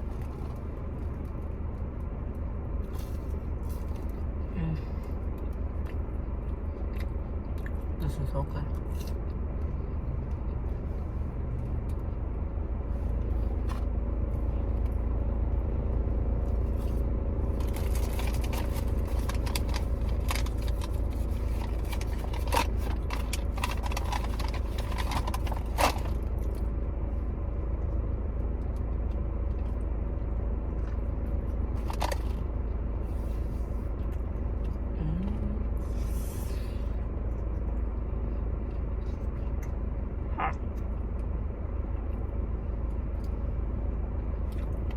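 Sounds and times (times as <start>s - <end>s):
steady low rumble: 0.0s - 44.9s
paper wrappers rustling: 17.6s - 26.2s.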